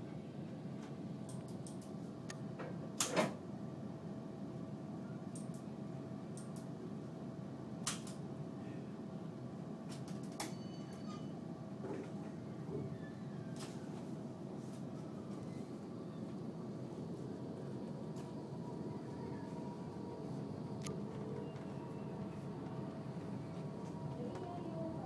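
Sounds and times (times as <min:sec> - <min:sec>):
faint steady hum: 0:00.1 - 0:25.0
tram rumbling: 0:11.9 - 0:25.0.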